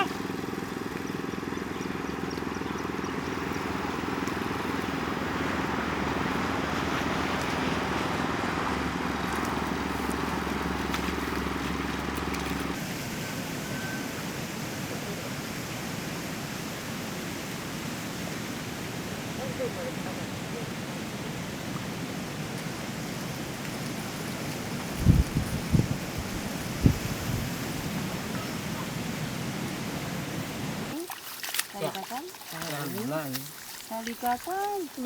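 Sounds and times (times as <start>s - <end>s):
small engine running: 0.0s - 12.9s.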